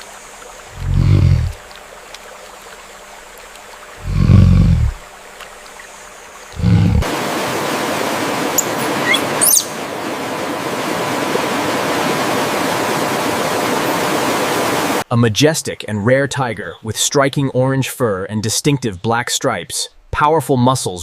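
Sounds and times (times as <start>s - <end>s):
flowing water rushing: 0.0s - 15.1s
deep rumbles: 0.7s - 1.6s, 4.0s - 5.0s, 6.5s - 7.0s
bird chirping: 8.6s - 9.8s.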